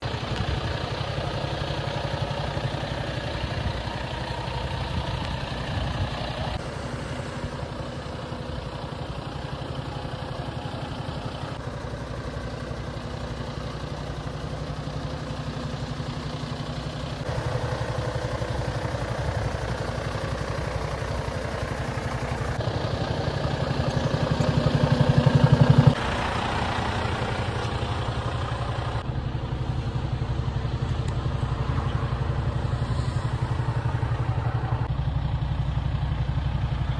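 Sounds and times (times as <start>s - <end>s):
diesel lorry engine idling: 0.0s - 36.9s.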